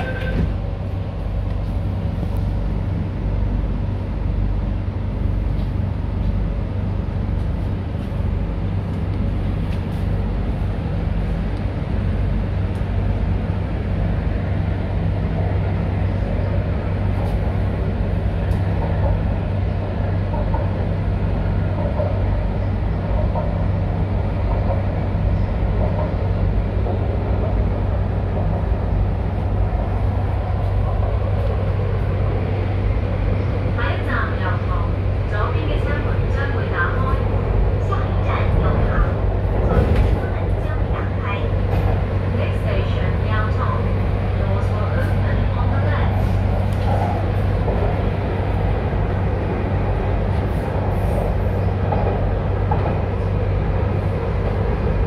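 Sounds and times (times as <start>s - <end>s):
train running gear hum: 0.0s - 55.0s
wheels rumbling on track: 0.0s - 55.0s.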